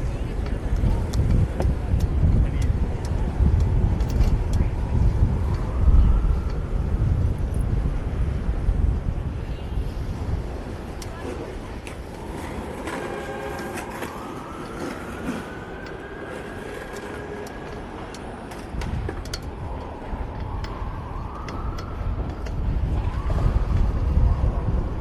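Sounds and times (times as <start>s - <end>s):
city street traffic: 0.0s - 25.0s
wind rumbling on microphone: 0.0s - 25.0s.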